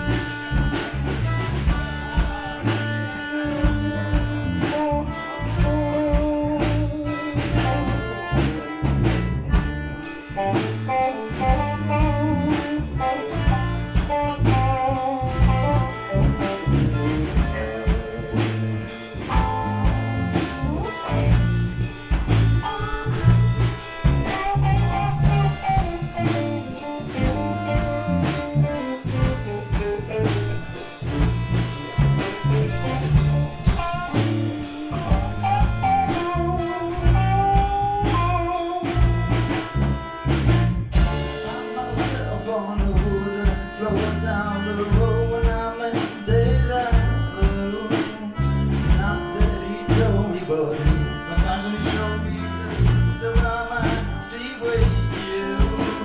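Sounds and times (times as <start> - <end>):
bass line: 0.0 - 56.0
rock band playing: 0.0 - 56.0
steady drum beat: 0.0 - 56.0.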